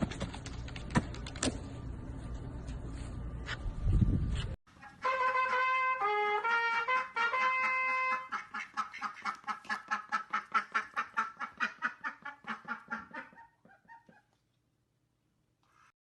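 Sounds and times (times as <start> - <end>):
held trumpet note: 4.8 - 8.3.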